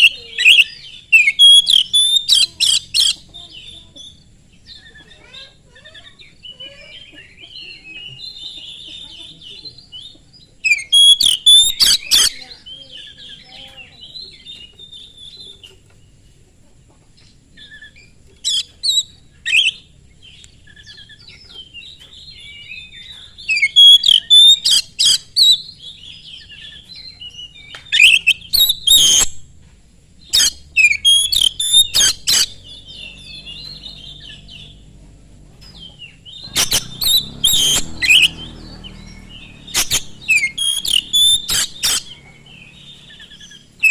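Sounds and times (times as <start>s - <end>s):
sharp piercing bird notes: 0.0s - 3.3s, 10.6s - 12.6s, 22.0s - 29.5s, 30.2s - 34.9s, 35.8s - 43.9s
songbird warbling: 0.0s - 9.6s, 10.6s - 15.8s, 17.5s - 29.5s, 30.2s - 43.9s.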